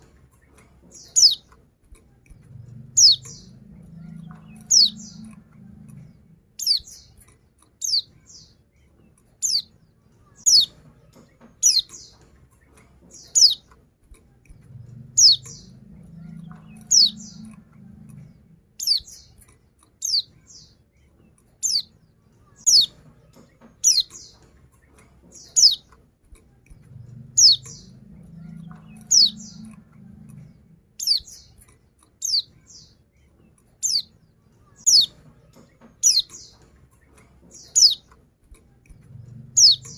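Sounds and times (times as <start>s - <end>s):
bird giving high downward calls: 1.0s - 1.4s, 3.0s - 5.4s, 6.6s - 7.0s, 10.4s - 10.8s, 13.3s - 13.6s, 15.2s - 17.6s, 18.8s - 19.2s, 22.6s - 23.0s, 27.4s - 29.8s, 31.0s - 31.4s, 34.8s - 35.2s.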